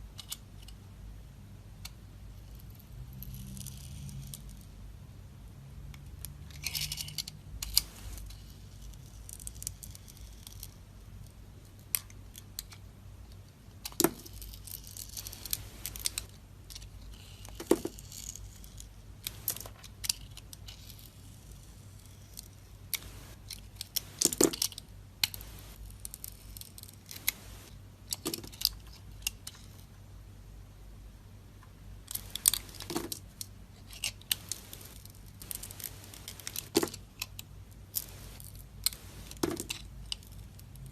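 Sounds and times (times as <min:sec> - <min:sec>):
steady low hum: 0:07.5 - 0:08.8, 0:15.1 - 0:17.1, 0:18.6 - 0:28.2, 0:28.9 - 0:40.9.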